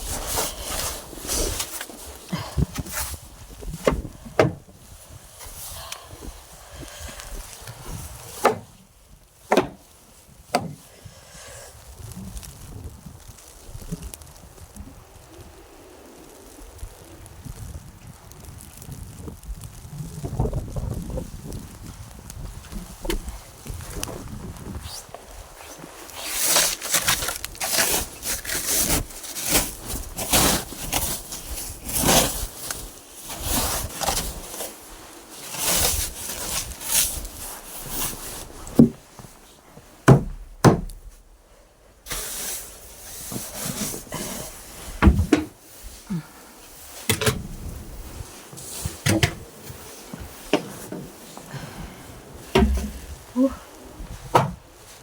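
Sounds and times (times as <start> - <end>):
brush sweeping snow: 0.0 - 3.9, 24.2 - 40.0, 42.0 - 55.0
sharp knocks: 9.5 - 9.8, 10.5 - 10.8, 40.1 - 40.9, 52.5 - 53.1.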